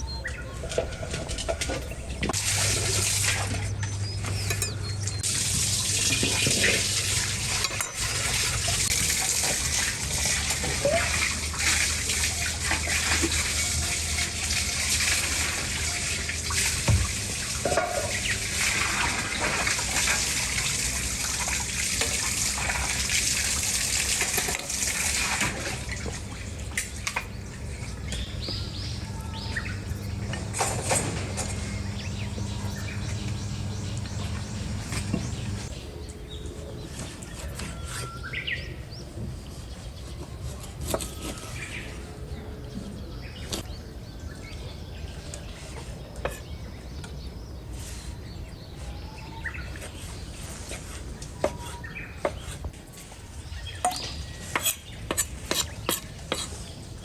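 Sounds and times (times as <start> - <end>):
water running and splashing: 2.3 - 27.1.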